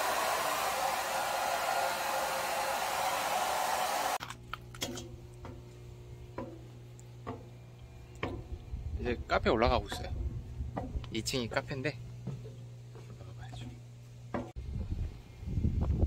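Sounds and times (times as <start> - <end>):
steady rushing hiss: 0.0 - 4.2
low steady hum: 4.2 - 16.0.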